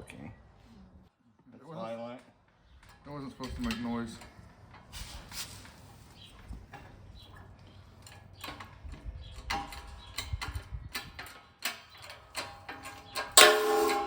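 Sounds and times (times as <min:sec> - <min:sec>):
hand tools clicking on metal: 0:09.4 - 0:14.0
loud metal strike ringing: 0:13.4 - 0:14.0.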